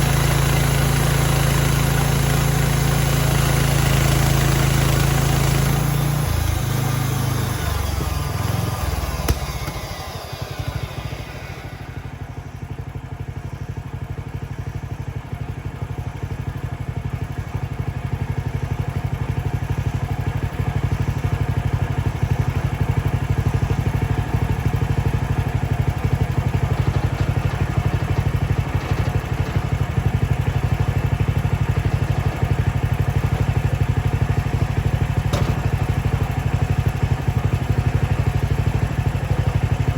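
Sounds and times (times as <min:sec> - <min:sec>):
sawmill gasoline engine running: 0:00.0 - 0:39.9.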